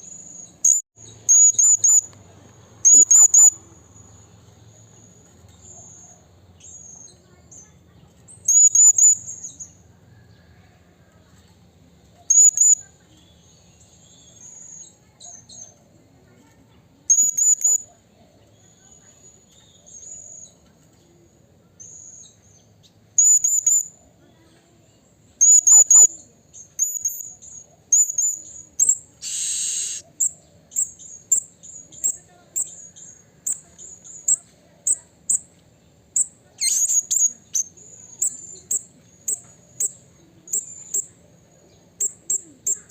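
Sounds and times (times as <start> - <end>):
parrot high-pitched calls: 0.6 - 2.1, 2.8 - 3.6, 12.3 - 12.8, 27.9 - 30.9, 36.6 - 38.8.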